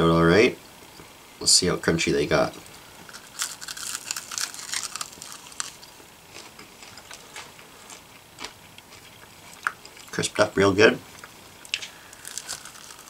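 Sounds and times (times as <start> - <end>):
crunching and chewing fried meat: 2.6 - 10.2, 11.2 - 13.0.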